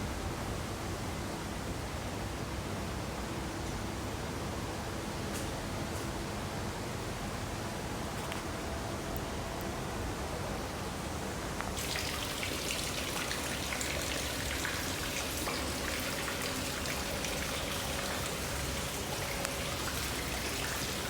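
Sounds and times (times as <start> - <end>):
water drips pattering: 11.8 - 21.0
water falling and splashing: 11.8 - 21.0.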